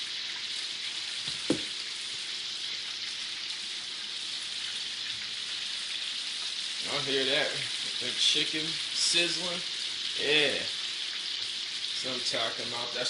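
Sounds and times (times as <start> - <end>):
chicken frying in hot oil: 0.0 - 13.0
short knock: 1.3 - 1.7.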